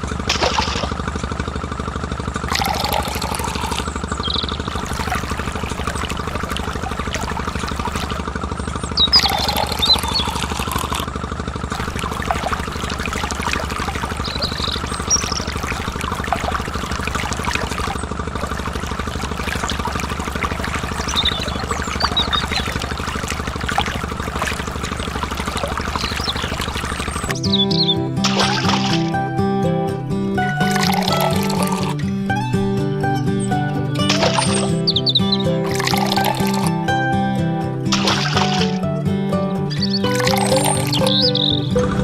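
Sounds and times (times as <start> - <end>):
water splashing and trickling: 0.0 - 1.3, 2.4 - 27.4, 28.2 - 29.2, 30.6 - 32.0, 34.0 - 34.9, 35.6 - 36.8, 37.9 - 38.9, 39.8 - 41.6
small motor humming: 2.4 - 27.4.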